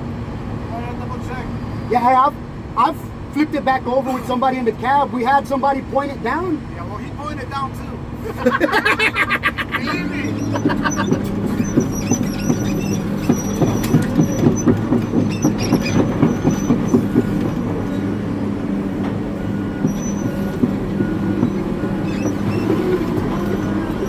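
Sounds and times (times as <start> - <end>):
diesel engine running: 0.0 - 24.0
faint high squeaks: 9.9 - 18.2, 19.4 - 24.0
metal clanks: 10.2 - 18.1.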